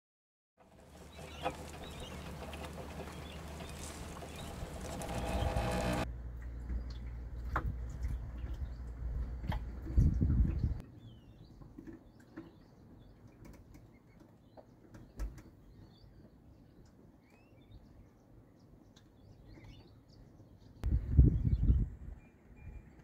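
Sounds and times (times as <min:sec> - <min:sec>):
small birds chirping: 0:00.6 - 0:23.0
low rumbling noise: 0:00.8 - 0:10.8.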